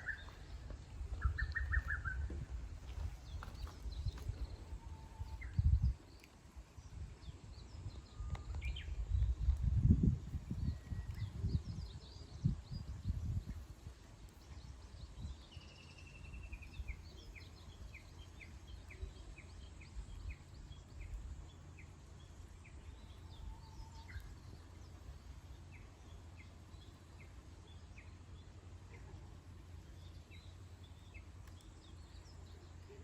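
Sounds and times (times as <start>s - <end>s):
low bumps: 0.0s - 6.0s
birds chirping faintly: 0.0s - 9.7s, 10.5s - 33.0s
steady low rumble: 0.0s - 33.0s.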